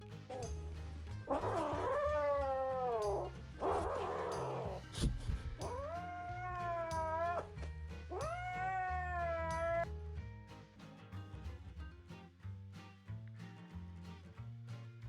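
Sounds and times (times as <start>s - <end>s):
cat yowling: 1.3s - 4.8s, 5.6s - 7.5s, 8.1s - 9.9s.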